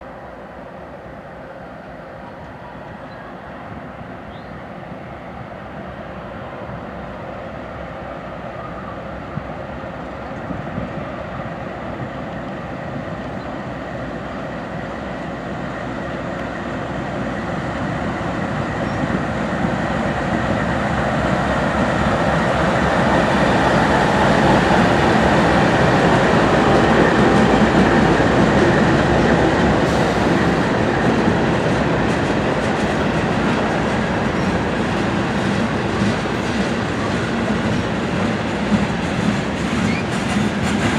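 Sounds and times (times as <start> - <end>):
train wheels clickety-clack: 10.2 - 40.9.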